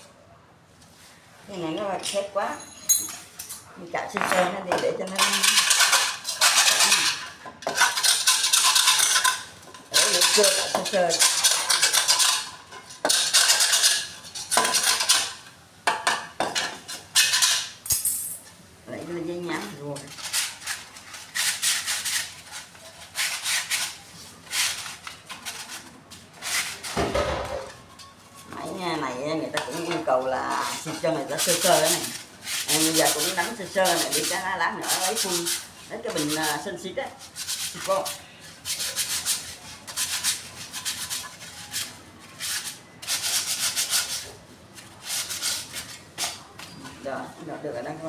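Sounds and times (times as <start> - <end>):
sandpaper rubbing on metal: 30.5 - 46.4.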